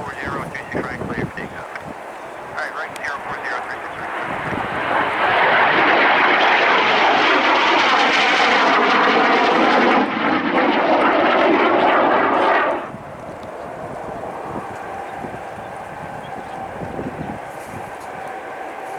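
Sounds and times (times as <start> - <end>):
jet engines roaring: 0.0 - 18.9.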